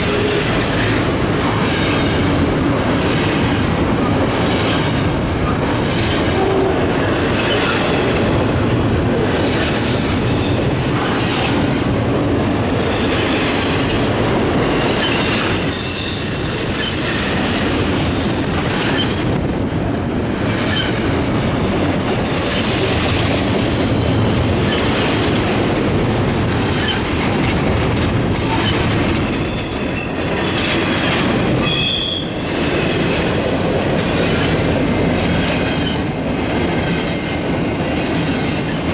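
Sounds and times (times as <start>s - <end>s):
freight train wheels rumbling on rails: 0.0s - 38.9s
high-pitched wheel squeals: 31.5s - 32.7s, 35.0s - 38.9s.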